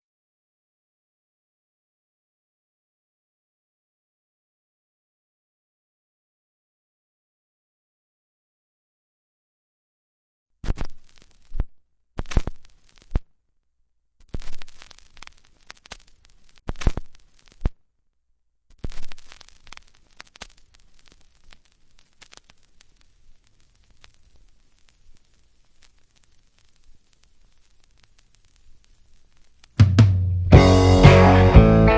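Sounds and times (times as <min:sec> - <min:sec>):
vinyl scraping and crackle: 0:10.6 - 0:13.3, 0:14.2 - 0:17.8, 0:18.7 - 0:29.8
vinyl surface crackle with pops: 0:10.6 - 0:13.3, 0:14.2 - 0:17.8, 0:18.7 - 0:29.8.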